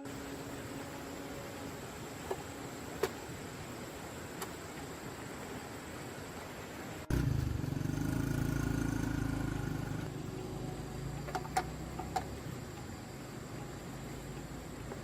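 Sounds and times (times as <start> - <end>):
tractor engine running: 7.1 - 15.0.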